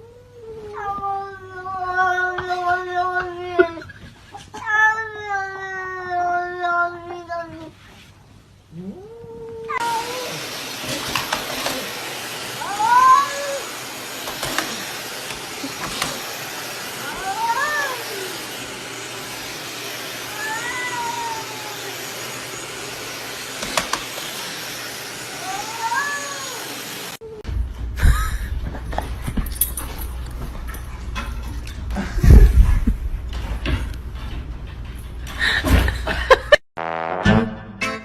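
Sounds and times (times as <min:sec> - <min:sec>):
cat meowing: 0:08.8 - 0:10.4, 0:12.6 - 0:13.7, 0:17.0 - 0:18.4, 0:20.2 - 0:22.0, 0:25.4 - 0:26.7
steady hiss: 0:09.8 - 0:27.2.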